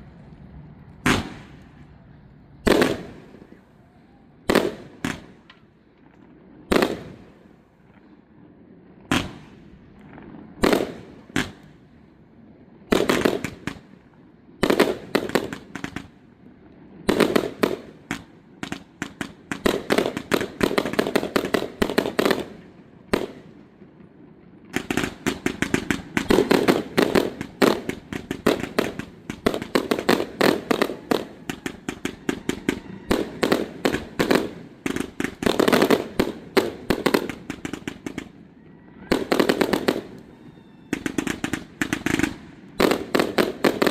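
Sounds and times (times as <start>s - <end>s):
fireworks bangs: 0.0s - 43.9s
crackling shell bursts: 24.7s - 43.9s.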